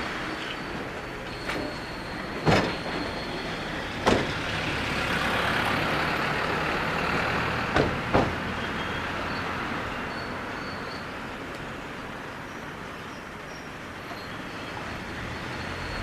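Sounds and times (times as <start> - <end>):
train wheels clunking over rail joints: 0.1 - 4.8, 7.6 - 8.6.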